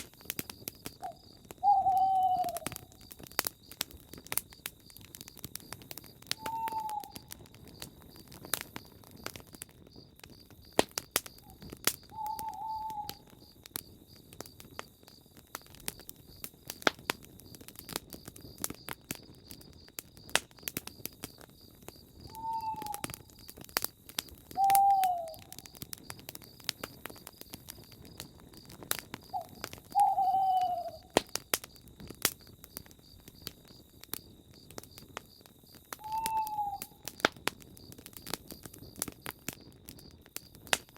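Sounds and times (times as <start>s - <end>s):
campfire crackling and popping: 0.0s - 40.9s
bird hooting: 1.0s - 2.8s, 6.4s - 7.2s, 12.1s - 13.3s, 22.4s - 23.1s, 24.6s - 25.5s, 29.3s - 31.2s, 36.0s - 37.0s.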